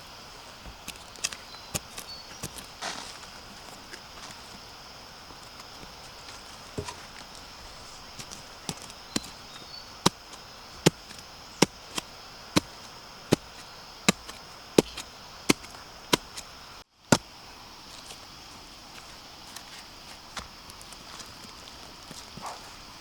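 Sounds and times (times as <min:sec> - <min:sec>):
blade chopping bamboo: 0:00.8 - 0:03.0, 0:06.2 - 0:16.5.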